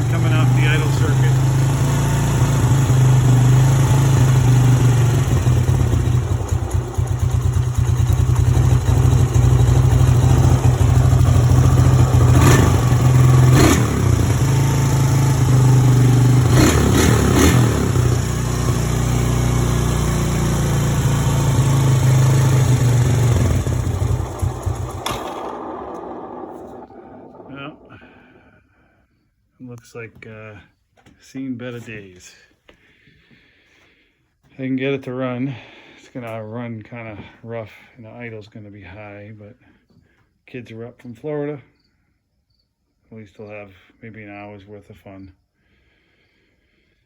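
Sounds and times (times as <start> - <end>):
small engine idling roughly: 0.0 - 28.5.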